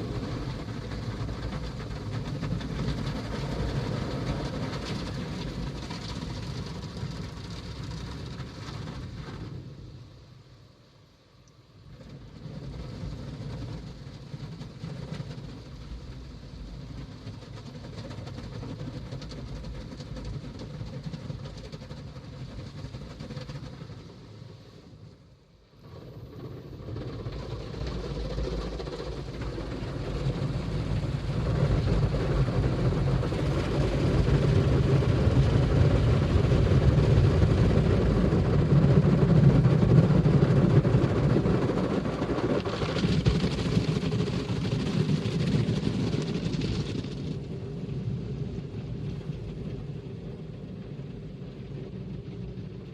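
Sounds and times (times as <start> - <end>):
car wash machine running: 29.0 - 49.2.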